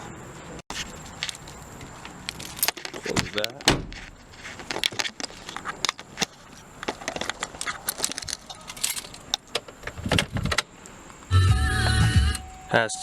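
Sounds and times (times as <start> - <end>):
keys jangling: 1.0 - 4.0, 7.0 - 9.4.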